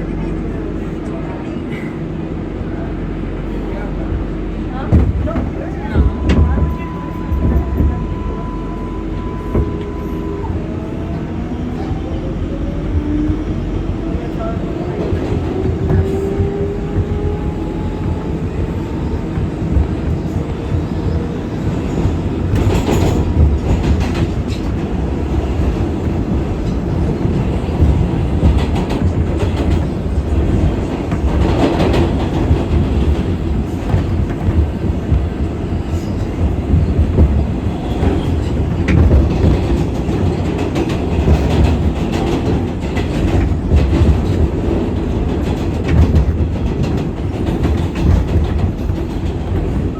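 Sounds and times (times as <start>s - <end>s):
subway train wheels rumbling: 0.0s - 49.9s
clacks over rail joints: 4.8s - 49.9s.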